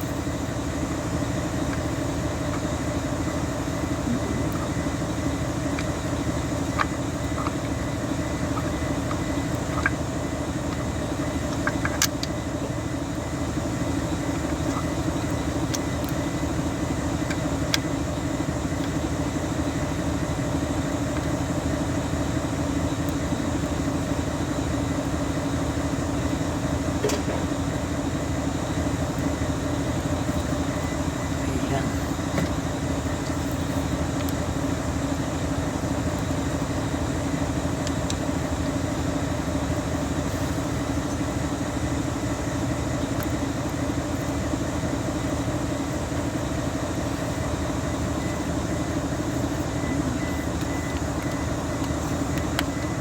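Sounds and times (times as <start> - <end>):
engine humming: 0.0 - 53.0.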